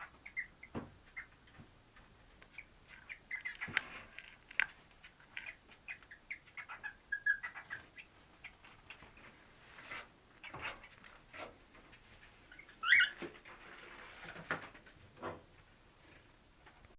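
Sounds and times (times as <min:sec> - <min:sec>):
cockatiel chirps: 0:00.0 - 0:01.3, 0:02.5 - 0:03.8, 0:05.4 - 0:08.6, 0:12.5 - 0:13.2.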